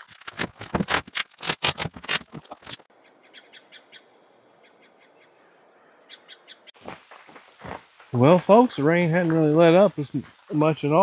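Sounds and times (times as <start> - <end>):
small bird chirping: 3.0 - 6.8
faint steady hiss: 6.8 - 11.0.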